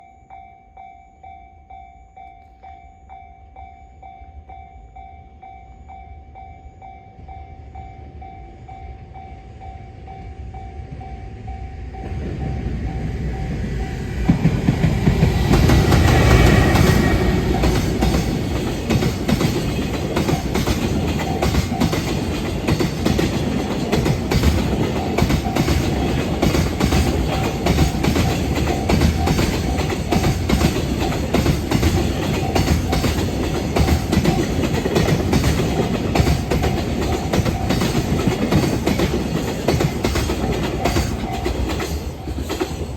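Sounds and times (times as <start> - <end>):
freight train rumble: 6.2 - 42.9
train wheels clattering over rail joints: 12.3 - 42.9.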